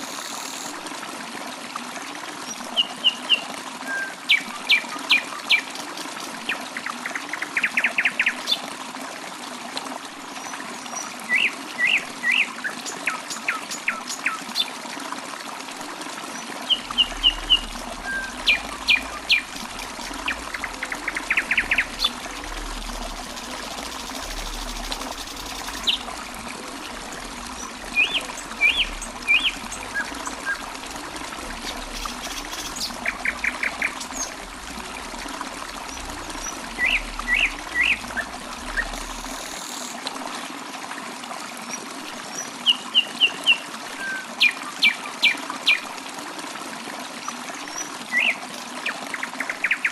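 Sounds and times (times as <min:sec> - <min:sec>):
water trickling: 0:00.0 - 0:49.9
small birds chirping: 0:27.2 - 0:34.7.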